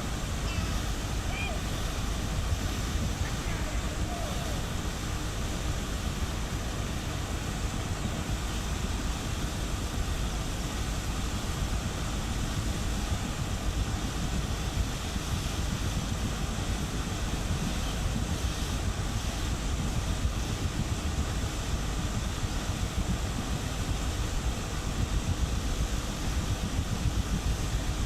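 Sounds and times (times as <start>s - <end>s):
ship engines rumbling: 0.0s - 7.7s
wind buffeting microphone: 0.0s - 28.0s.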